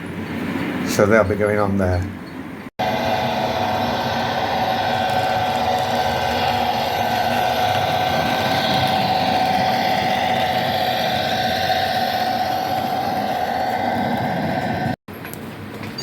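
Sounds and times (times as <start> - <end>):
low rumble from track: 2.8 - 15.0
model train motor whine: 2.8 - 15.0.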